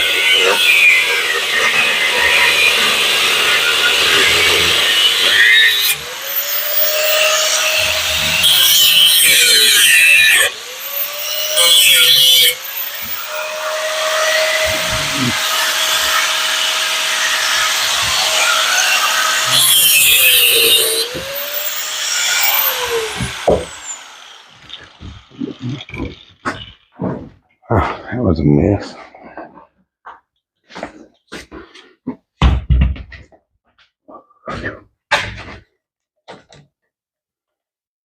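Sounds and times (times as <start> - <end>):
power tool cutting metal: 0.0 - 27.0.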